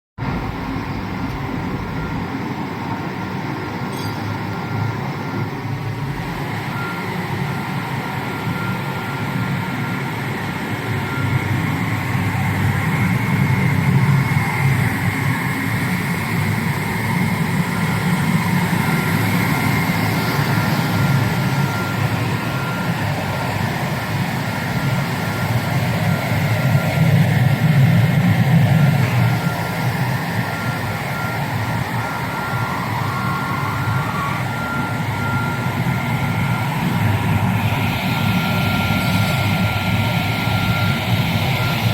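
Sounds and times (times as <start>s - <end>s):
thin continuous whine: 0.2s - 41.9s
washing machine running: 0.2s - 41.9s.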